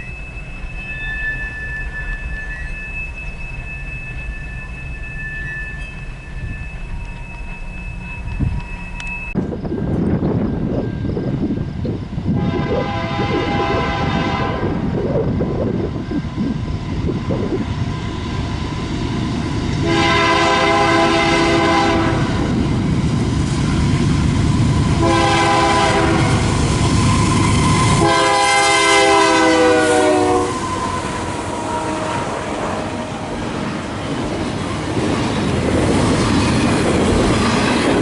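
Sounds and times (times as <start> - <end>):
train rumble and wheels on rails: 0.0 - 38.0
locomotive air horn blasts: 12.3 - 14.9, 19.8 - 22.5, 25.0 - 26.6, 27.6 - 32.8.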